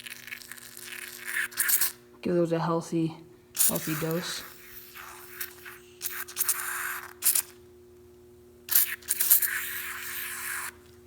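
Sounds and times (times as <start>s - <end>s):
aerosol can spraying: 0.9s - 2.0s, 3.6s - 7.5s, 8.7s - 10.8s.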